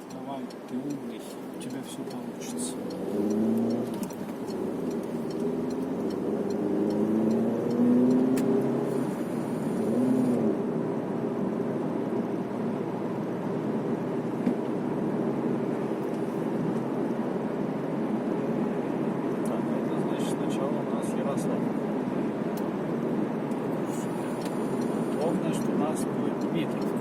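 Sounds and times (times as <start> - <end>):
turn signal ticking: 0.0 - 10.4, 22.5 - 27.0
car road and engine noise: 0.0 - 27.0.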